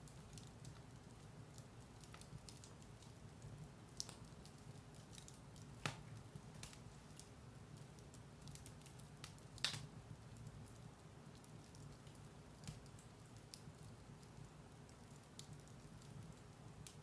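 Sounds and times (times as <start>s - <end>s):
firewood crackling: 0.0s - 17.0s
low rumble of fire: 0.0s - 17.0s
loud fire pops: 5.2s - 7.3s, 8.4s - 10.0s.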